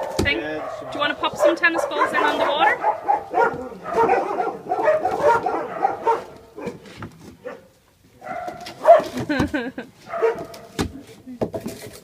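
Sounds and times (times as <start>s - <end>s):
puppies yapping and whining: 0.0s - 6.8s.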